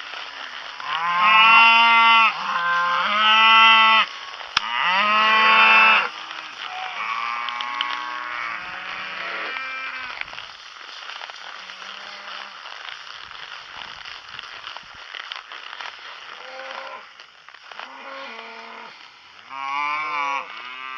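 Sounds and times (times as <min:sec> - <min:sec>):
cattle mooing: 0:00.8 - 0:10.2, 0:17.8 - 0:20.9.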